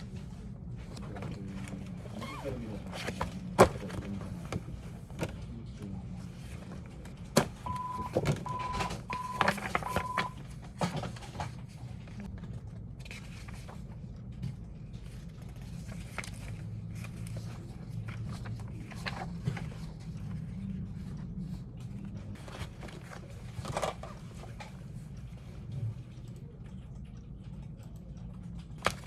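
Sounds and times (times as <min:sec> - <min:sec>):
short electronic beeps: 0:07.7 - 0:10.3.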